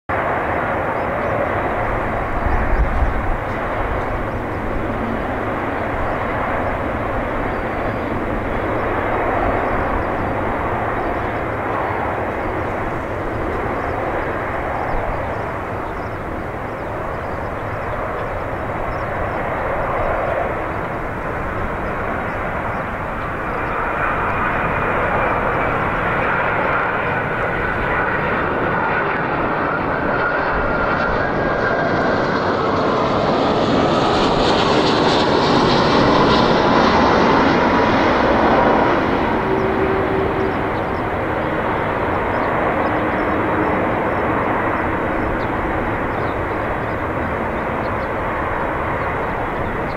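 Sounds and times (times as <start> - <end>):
jet engine whine sliding down: 0.1 - 49.9
jet plane passing by: 0.1 - 49.9.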